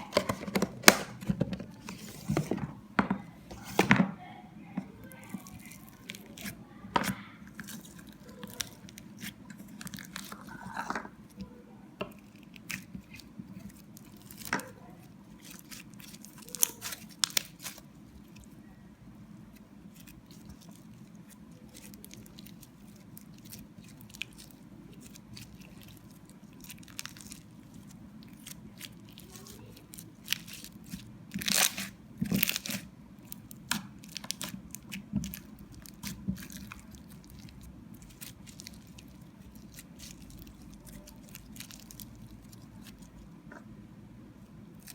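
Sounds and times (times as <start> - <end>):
slime popping and crackling: 12.2 - 18.6, 20.0 - 43.2.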